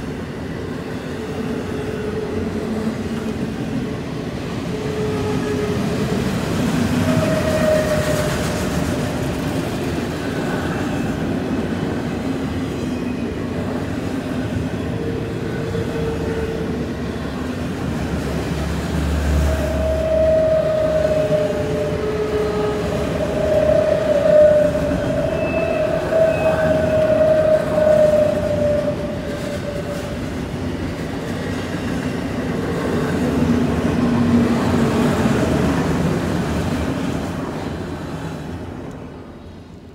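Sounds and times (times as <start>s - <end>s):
train wheels rumbling on rails: 0.0s - 39.9s
wheels squealing on curve: 19.4s - 30.1s.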